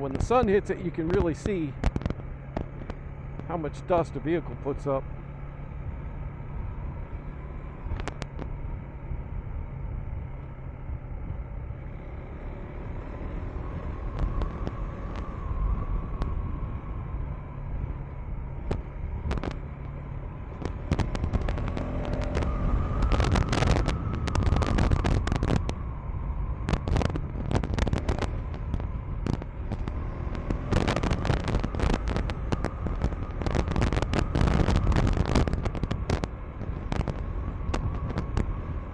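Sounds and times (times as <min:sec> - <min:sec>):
motorcycle engine running: 0:00.0 - 0:38.9
crackle of sharp clicks: 0:01.8 - 0:03.5, 0:07.9 - 0:08.5, 0:18.6 - 0:25.8, 0:26.6 - 0:38.7.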